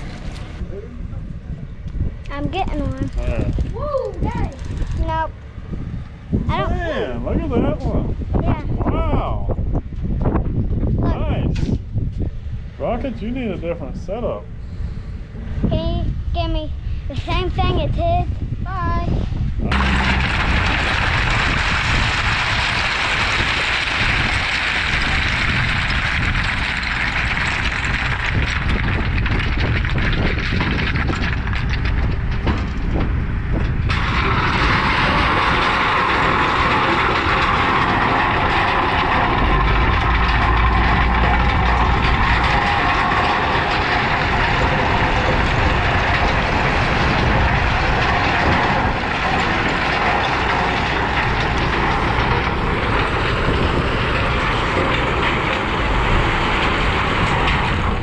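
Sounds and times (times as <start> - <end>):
heavy diesel equipment running: 0.0 - 11.0, 19.5 - 58.0.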